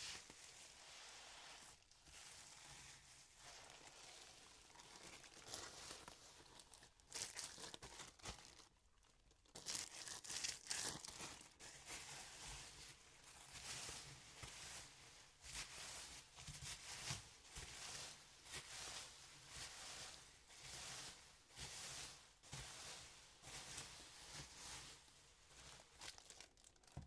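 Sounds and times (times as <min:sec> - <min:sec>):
packaging crinkling and tearing: 0:03.5 - 0:11.6, 0:25.6 - 0:27.0.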